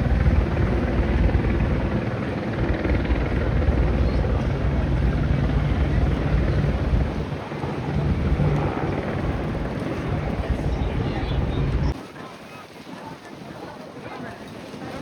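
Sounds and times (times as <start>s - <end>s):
low rumble: 3.2s - 12.0s.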